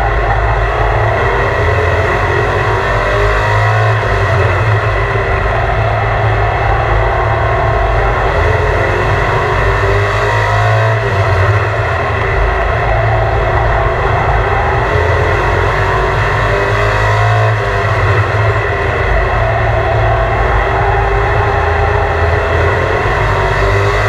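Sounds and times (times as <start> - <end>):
truck engine running loud: 0.0 - 24.0.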